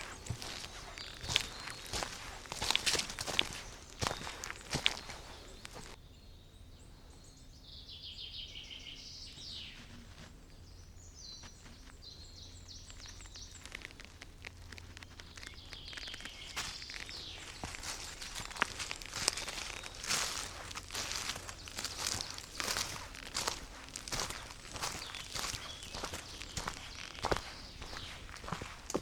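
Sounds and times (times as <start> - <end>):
footsteps on forest floor: 0.0 - 6.0, 11.2 - 29.0
songbirds singing: 0.0 - 29.0.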